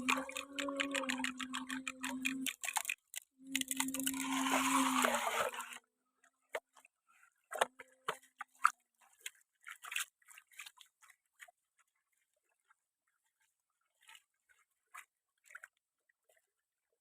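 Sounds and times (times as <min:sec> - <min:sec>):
plastic toy vehicles clicking: 0:00.0 - 0:04.4.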